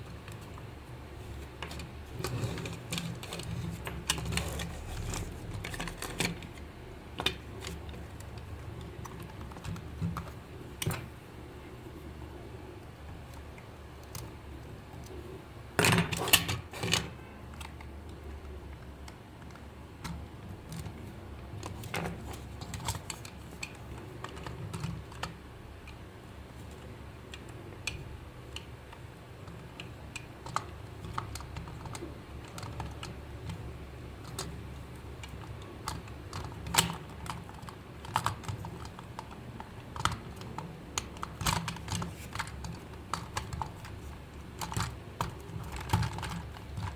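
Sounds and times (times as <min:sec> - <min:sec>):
low steady hum: 0:00.0 - 0:46.9
small hard parts clicking: 0:26.7 - 0:46.9.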